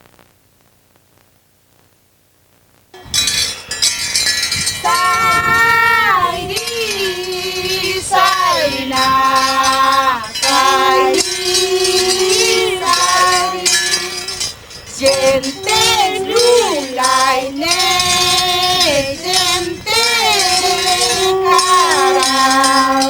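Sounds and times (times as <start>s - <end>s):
person singing in a high voice: 4.8s - 23.0s.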